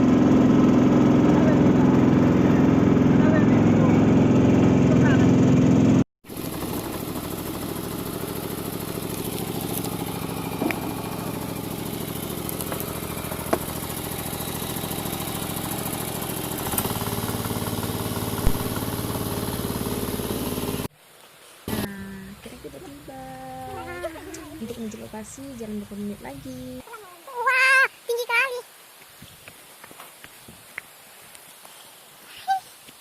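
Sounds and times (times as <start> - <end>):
vehicle engine running: 0.0 - 20.9, 21.7 - 26.8.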